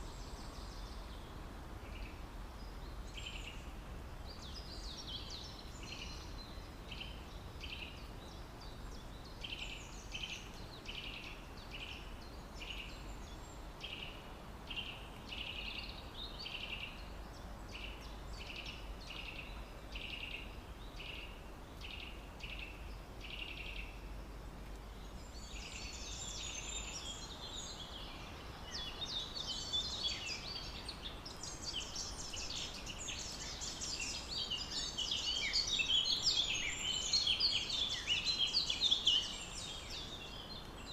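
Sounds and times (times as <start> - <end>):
birds twittering: 24.9 - 40.9.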